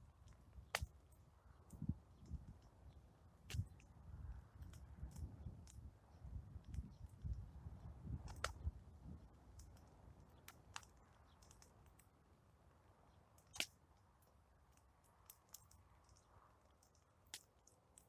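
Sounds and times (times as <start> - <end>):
campfire crackling: 8.2 - 12.4, 13.4 - 18.0.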